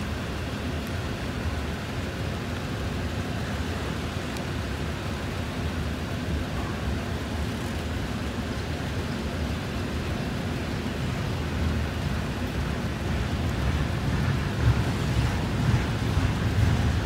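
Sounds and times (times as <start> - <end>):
freight cars rumbling past: 11.9 - 17.0.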